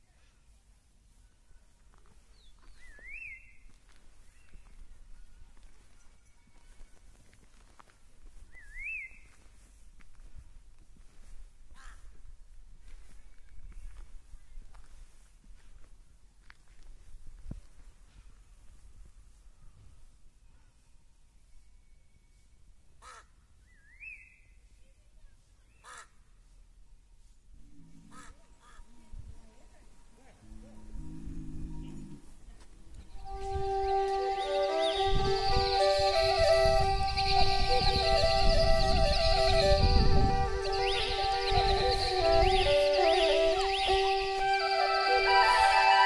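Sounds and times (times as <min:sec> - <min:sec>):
faint footsteps on road: 0:00.0 - 0:20.9, 0:29.7 - 0:46.0
bird whistling call: 0:02.7 - 0:03.6, 0:08.5 - 0:09.3, 0:33.3 - 0:39.8, 0:40.5 - 0:44.3
crow-like caws: 0:11.8 - 0:12.1, 0:23.0 - 0:23.3, 0:25.8 - 0:26.1, 0:28.1 - 0:28.8.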